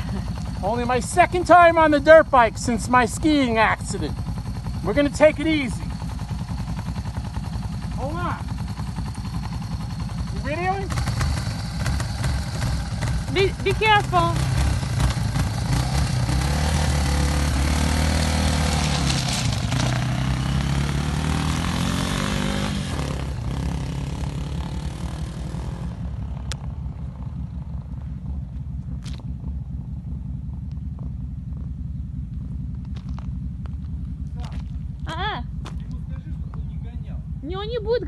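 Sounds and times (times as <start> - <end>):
dirt bike engine revving: 0.0 - 28.4
faint low rumble: 25.8 - 38.0.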